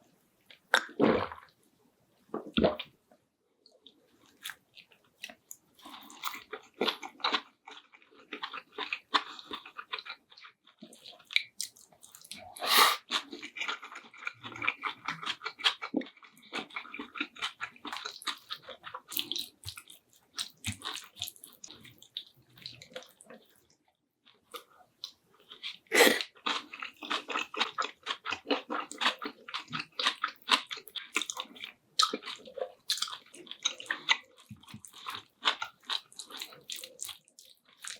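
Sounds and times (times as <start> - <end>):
person chewing food: 3.8 - 37.9
wet mouth sounds: 25.8 - 26.3.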